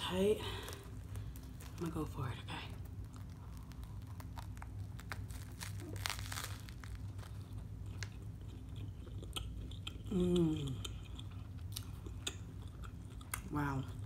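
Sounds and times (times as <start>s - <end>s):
crunchy bite and chewing: 2.8s - 10.1s.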